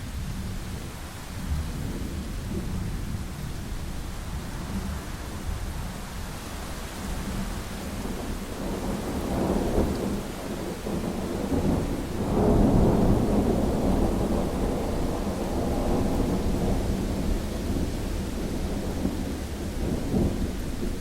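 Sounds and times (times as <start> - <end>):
steady rain: 0.0 - 21.0
rolling thunder: 8.0 - 21.0.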